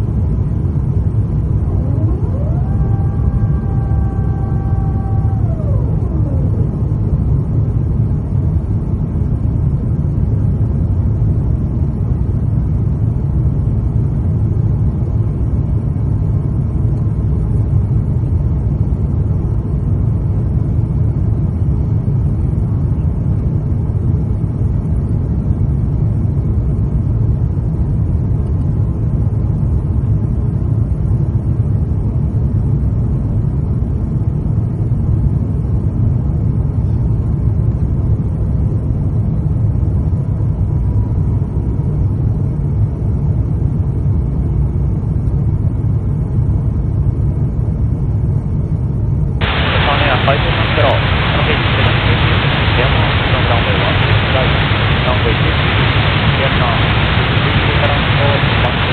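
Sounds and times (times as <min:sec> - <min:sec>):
aircraft cabin rumble: 0:00.0 - 0:13.3, 0:49.4 - 0:58.9
engine tones sliding down: 0:01.4 - 0:07.4, 0:49.4 - 0:58.9.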